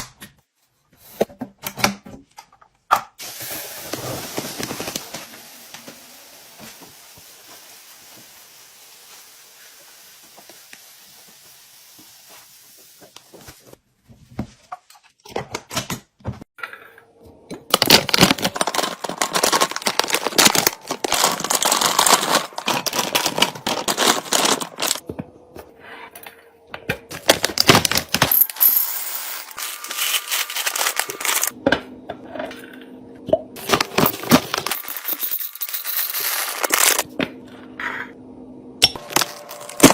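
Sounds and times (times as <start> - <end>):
plastic crinkling and tearing: 17.7 - 25.0, 29.5 - 31.6, 36.1 - 37.1.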